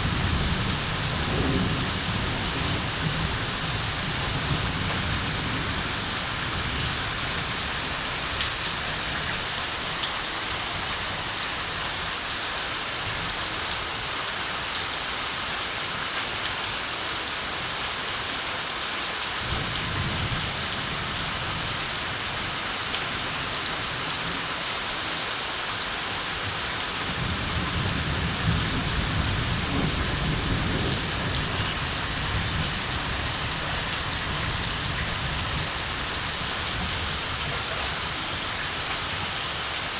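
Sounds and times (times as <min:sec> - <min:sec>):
distant thunder rumbles: 0:00.0 - 0:06.8, 0:27.2 - 0:37.8
steady rain falling: 0:00.0 - 0:39.9.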